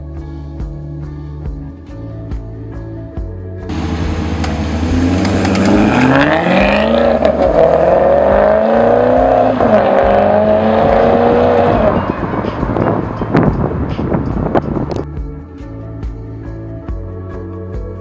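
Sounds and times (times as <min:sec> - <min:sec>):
car engine accelerating: 0:03.7 - 0:15.0.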